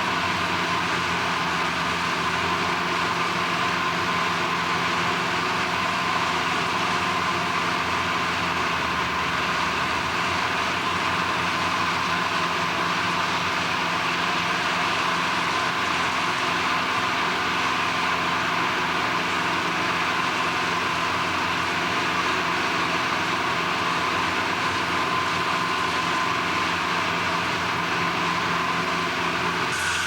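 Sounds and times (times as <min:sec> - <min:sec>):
industrial machinery droning: 0:00.0 - 0:30.0.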